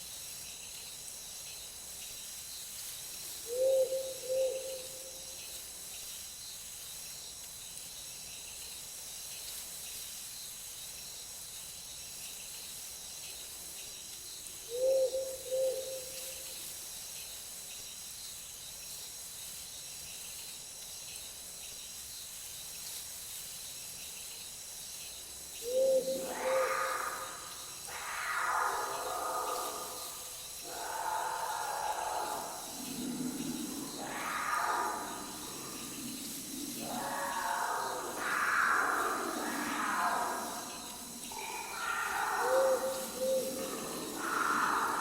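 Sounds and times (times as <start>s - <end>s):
insects chirring: 0.0s - 45.0s
owl hooting: 3.5s - 5.0s, 14.7s - 16.2s, 25.6s - 45.0s
louder animal call: 25.7s - 45.0s.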